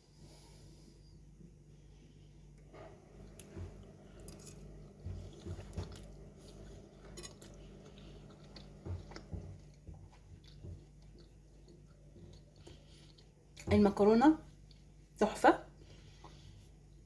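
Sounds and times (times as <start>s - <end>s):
steady low hum: 0.0s - 17.0s
person chewing: 3.2s - 13.6s, 14.5s - 15.1s.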